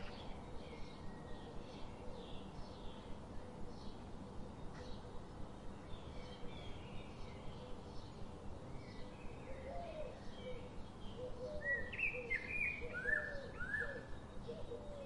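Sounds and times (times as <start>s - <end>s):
birds chirping and calling: 8.8s - 15.0s.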